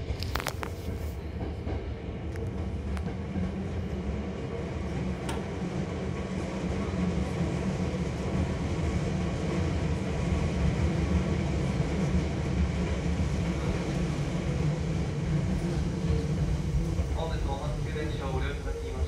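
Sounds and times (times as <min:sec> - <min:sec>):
train interior low rumble: 0:00.0 - 0:19.0.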